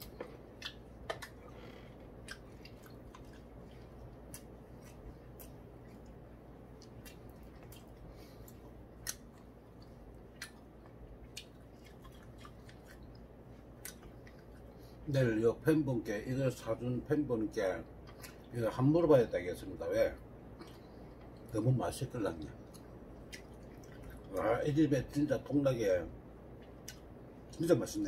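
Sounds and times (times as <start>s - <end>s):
person chewing: 0.0s - 15.0s, 18.0s - 18.5s, 20.5s - 21.5s, 22.6s - 24.6s, 26.6s - 27.6s
faint low hum: 0.0s - 28.0s.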